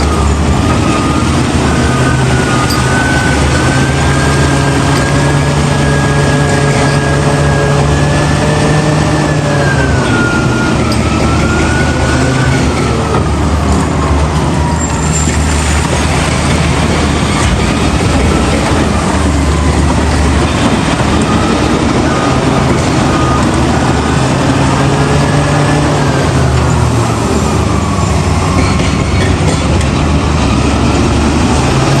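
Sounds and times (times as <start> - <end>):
heavy diesel machinery running: 0.0 - 32.0.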